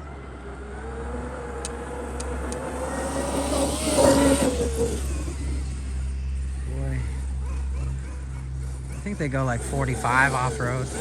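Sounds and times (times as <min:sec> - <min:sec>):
electric motor whining: 0:09.1 - 0:11.0.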